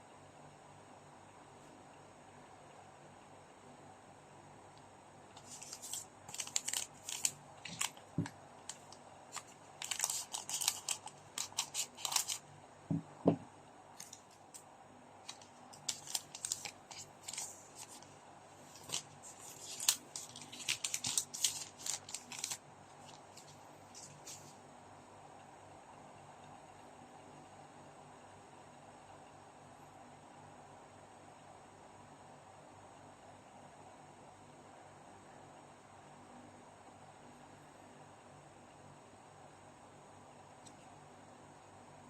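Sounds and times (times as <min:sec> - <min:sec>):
card packs crinkling and tearing: 0:05.4 - 0:12.4, 0:15.3 - 0:18.1, 0:18.7 - 0:24.5.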